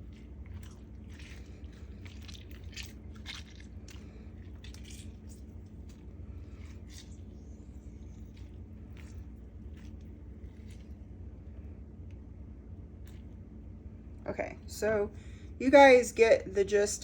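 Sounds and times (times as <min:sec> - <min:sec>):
salad being mixed crunches: 0:00.0 - 0:11.8, 0:13.0 - 0:13.5
low hum: 0:00.0 - 0:17.0.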